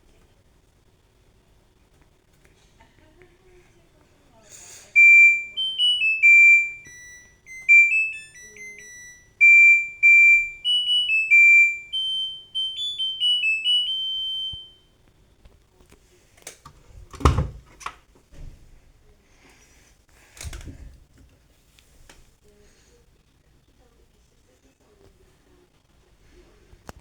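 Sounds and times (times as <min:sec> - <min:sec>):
electronic beeping melody: 0:05.0 - 0:14.8.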